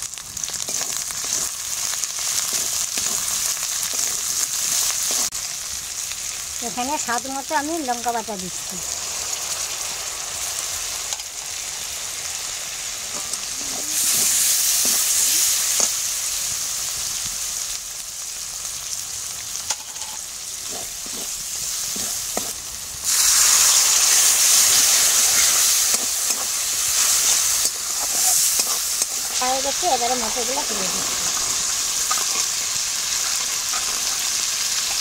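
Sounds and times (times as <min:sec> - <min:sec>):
masala sizzling in hot oil: 0:00.0 - 0:35.0
metal spatula scraping: 0:02.2 - 0:05.3, 0:19.7 - 0:29.4, 0:30.6 - 0:35.0.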